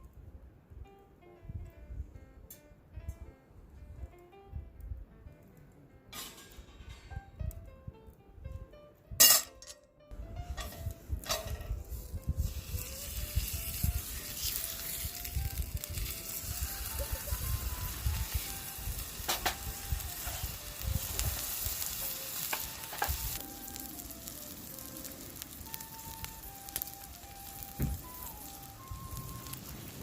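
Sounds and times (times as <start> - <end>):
soft background melody: 0.0 - 30.0
meat sizzling over fire: 10.3 - 30.0.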